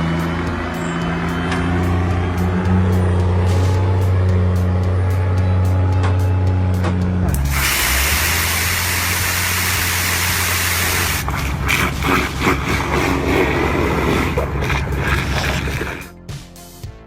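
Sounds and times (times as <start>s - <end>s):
diesel engine droning: 0.0s - 16.2s
loud hiss: 7.4s - 12.2s.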